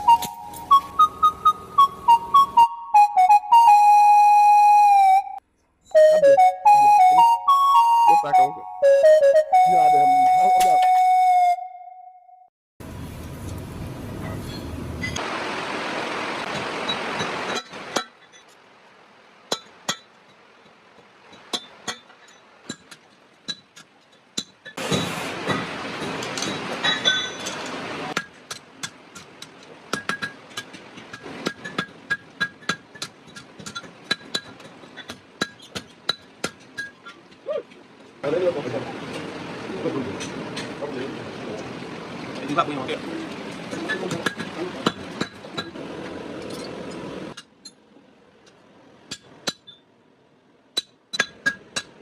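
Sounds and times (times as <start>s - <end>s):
hammer striking metal on an anvil: 50.8s - 52.0s.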